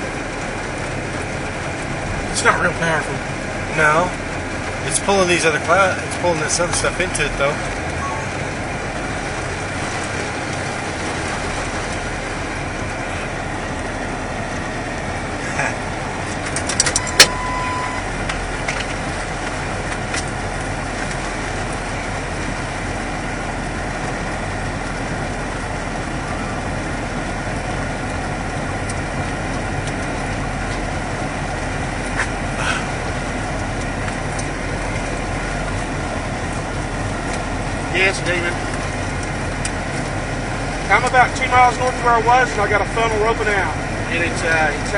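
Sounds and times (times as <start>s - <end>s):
truck running from inside cab: 0.0s - 44.9s
short beep: 8.0s - 8.4s, 17.0s - 18.1s.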